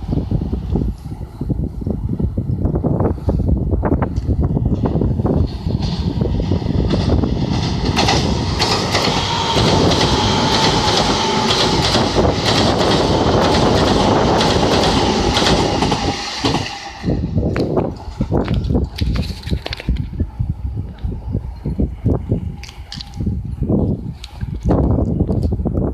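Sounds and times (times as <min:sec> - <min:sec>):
electric train whine: 0:00.0 - 0:25.8
train wheels clattering over rail joints: 0:04.7 - 0:20.1.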